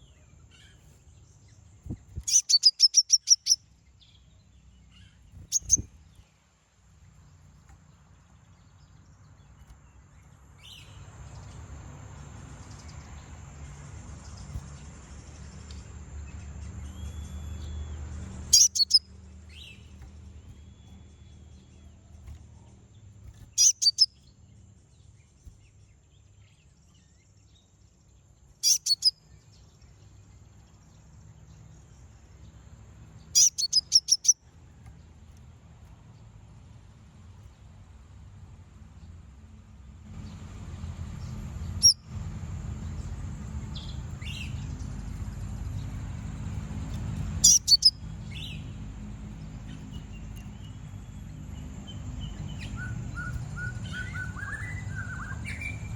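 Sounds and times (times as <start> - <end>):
bird chirping high: 0.0 - 4.2, 4.9 - 6.3, 16.7 - 22.4, 23.2 - 24.3, 28.6 - 29.4, 33.2 - 34.4, 41.7 - 42.1, 47.2 - 48.7, 49.6 - 55.9.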